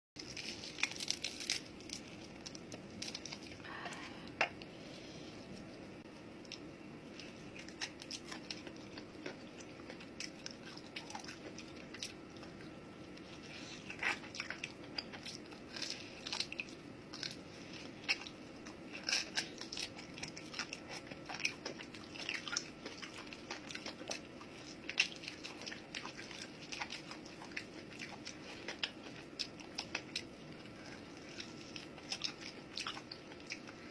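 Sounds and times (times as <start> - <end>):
biting and chewing: 0.2 - 3.6, 6.4 - 33.9
crisp crunches: 0.2 - 3.6
steady low hum: 0.2 - 33.9.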